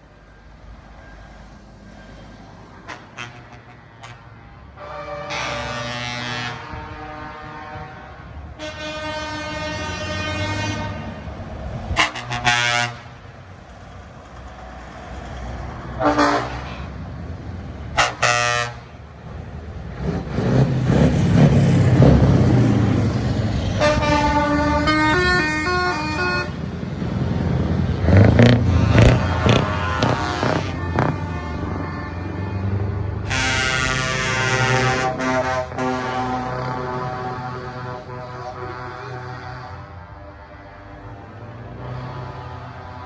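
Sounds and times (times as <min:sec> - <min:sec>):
loud diesel engines: 0:00.0 - 0:43.0
truck air horns: 0:02.7 - 0:13.4, 0:15.8 - 0:17.0, 0:17.9 - 0:19.1, 0:23.6 - 0:26.6, 0:28.0 - 0:43.0.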